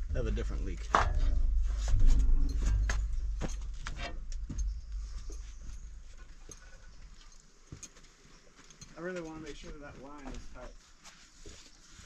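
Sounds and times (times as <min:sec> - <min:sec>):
low rumble: 0:00.0 - 0:07.4.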